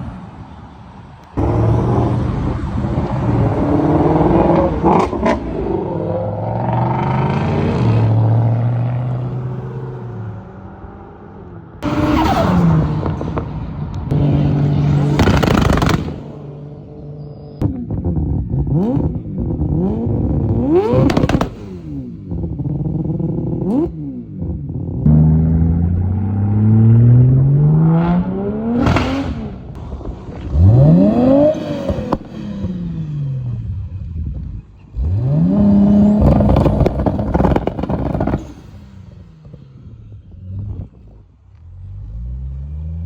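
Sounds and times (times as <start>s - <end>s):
car engines revving: 0.0s - 43.0s
exhaust cracks and pops: 15.1s - 16.3s, 20.4s - 21.7s, 36.1s - 38.7s.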